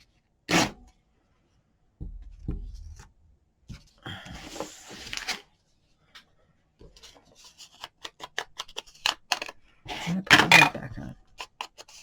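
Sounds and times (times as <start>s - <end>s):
paper rustling and handling: 4.5s - 5.5s.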